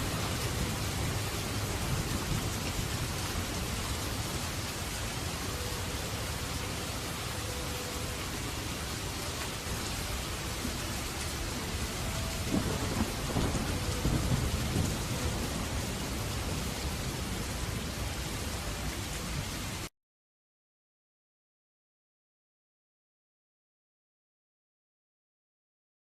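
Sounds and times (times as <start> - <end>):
low thunder rumble: 0.0 - 6.7, 8.4 - 19.8
heavy rain: 0.0 - 19.9.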